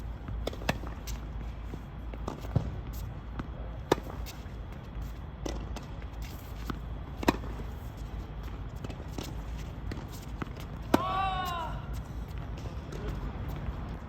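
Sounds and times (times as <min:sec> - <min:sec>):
tennis ball bouncing on court: 0:00.2 - 0:01.2, 0:02.1 - 0:04.4, 0:05.4 - 0:07.7, 0:08.4 - 0:11.7
tennis ball struck by rackets: 0:03.4 - 0:04.3, 0:07.2 - 0:07.6, 0:08.8 - 0:11.3.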